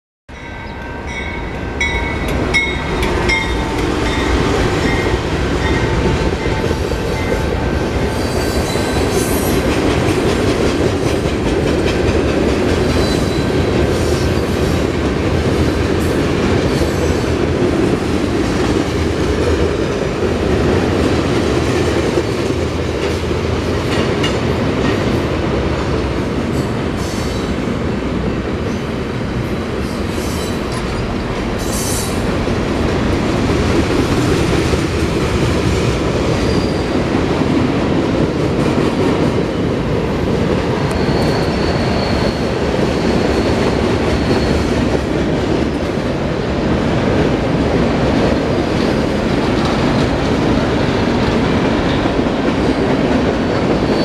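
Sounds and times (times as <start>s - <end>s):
freight train wheels rumbling: 0.3s - 54.0s
rail joint clicks: 0.4s - 25.9s, 29.4s - 54.0s
high wheel squeal: 36.4s - 37.0s, 40.8s - 44.8s.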